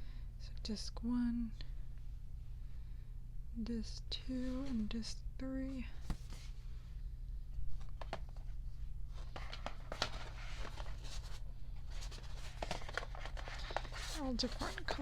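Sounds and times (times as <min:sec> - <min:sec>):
steady low hum: 0:00.0 - 0:15.0
discs and folder handling noise: 0:07.8 - 0:08.5, 0:09.2 - 0:15.0.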